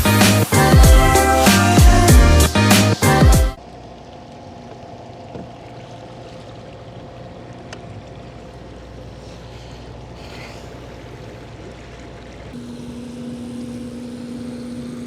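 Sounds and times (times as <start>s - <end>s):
steady low hum: 3.2s - 15.0s
kayak moving on water: 3.6s - 15.0s.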